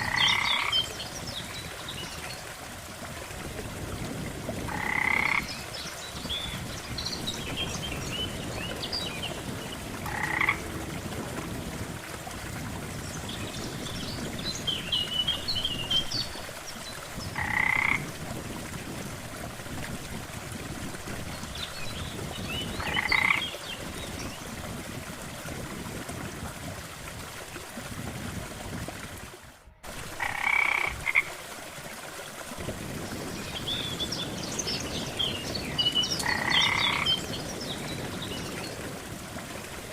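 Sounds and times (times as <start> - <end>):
frog croaking: 0.0 - 0.8, 4.7 - 5.5, 10.0 - 10.6, 17.4 - 18.1, 22.8 - 23.4, 30.2 - 31.3, 36.2 - 37.1
high chirping frog calls: 0.0 - 0.8, 4.7 - 5.5, 10.1 - 10.6, 17.4 - 18.1, 22.8 - 23.4, 36.2 - 37.2.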